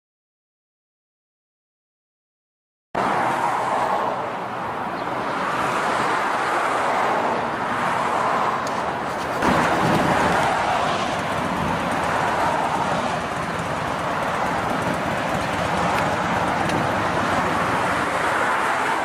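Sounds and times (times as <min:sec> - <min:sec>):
truck engine running: 0:08.8 - 0:18.4.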